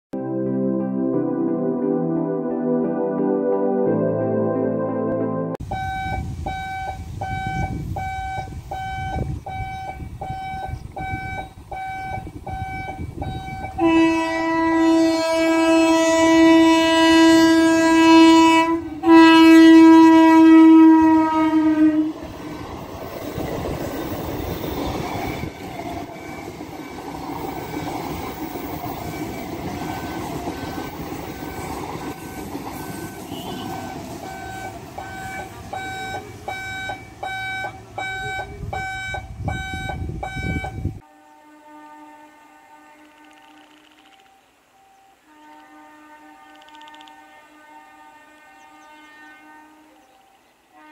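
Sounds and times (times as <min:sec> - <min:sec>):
train horn blasts: 0:05.6 - 0:22.3, 0:28.4 - 0:43.7, 0:45.2 - 0:50.9
level-crossing alarm beeping: 0:05.7 - 0:13.8, 0:23.4 - 0:41.0
train wheels rumbling on track: 0:18.2 - 0:41.0.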